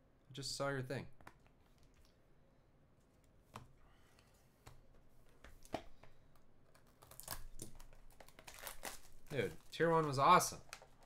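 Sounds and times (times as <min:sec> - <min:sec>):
paper and plastic rustling: 0:07.0 - 0:11.0.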